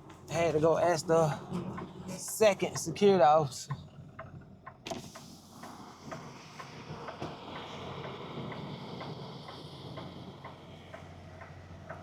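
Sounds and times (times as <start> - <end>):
low cab hum: 0.0 - 12.0.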